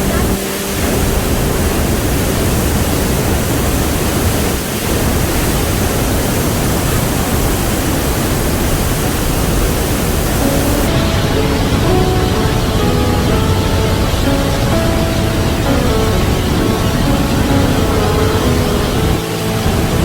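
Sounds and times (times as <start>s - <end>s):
light melodic background music: 0.0s - 2.5s, 10.2s - 20.0s
waterfall rushing: 0.0s - 20.0s.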